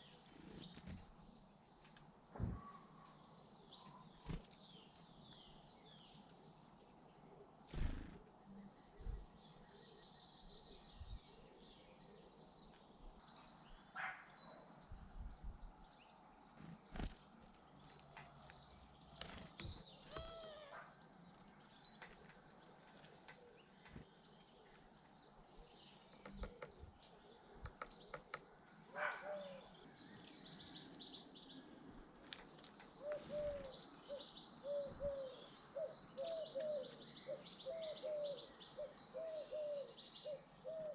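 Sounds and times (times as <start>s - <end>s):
small birds chirping: 0.0s - 40.9s
pigeon cooing: 33.0s - 40.9s.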